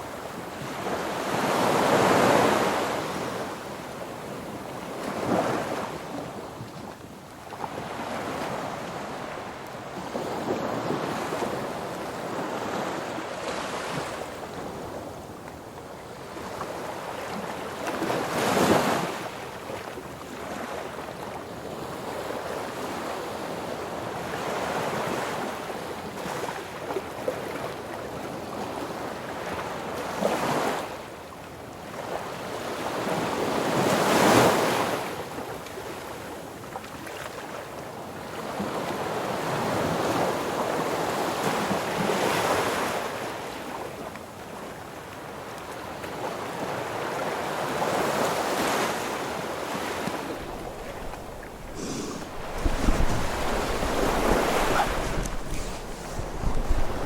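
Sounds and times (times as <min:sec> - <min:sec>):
wind rushing over microphone: 0:50.1 - 0:57.0.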